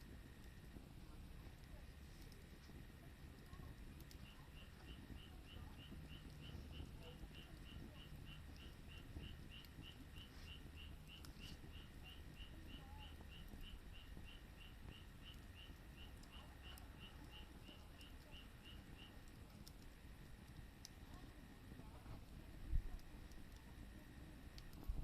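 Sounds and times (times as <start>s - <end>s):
faint clicks: 1.4s - 21.3s
faint high-pitched chirping: 3.4s - 19.8s.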